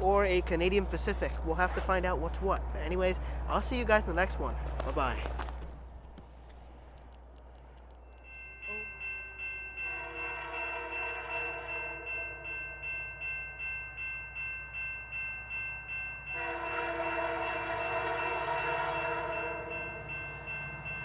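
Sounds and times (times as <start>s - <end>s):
railroad crossing bell ringing: 0.0s - 5.2s, 8.0s - 21.0s
locomotive horn chord: 9.8s - 12.8s, 16.4s - 20.1s.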